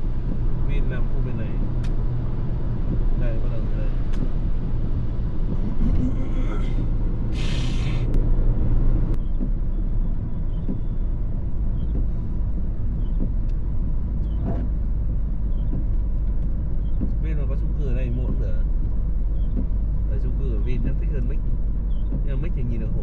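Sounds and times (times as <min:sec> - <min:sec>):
car engine running: 0:00.0 - 0:23.0
short hiss: 0:07.3 - 0:08.1.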